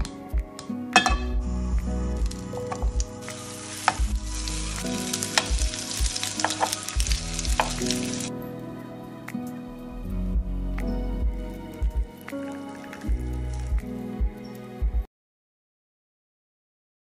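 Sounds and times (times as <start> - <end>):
butter sizzling in a frying pan: 2.2 - 8.3.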